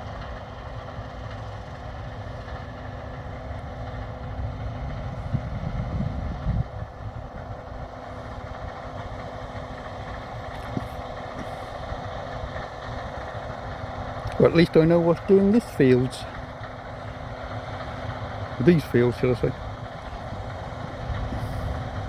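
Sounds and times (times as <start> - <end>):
combine harvester drone with whine: 0.0 - 22.0.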